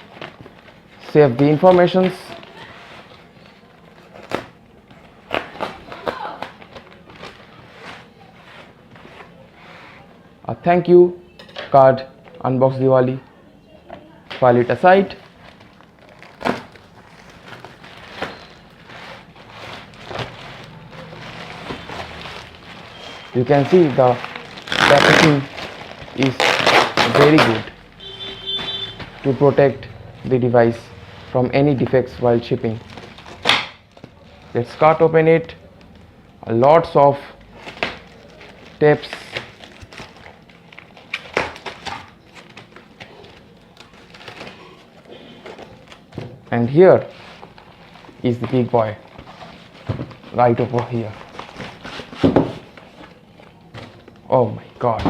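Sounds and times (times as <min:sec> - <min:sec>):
cardboard packaging rustling: 0:14.8 - 0:30.3, 0:30.9 - 0:35.1, 0:37.2 - 0:54.9.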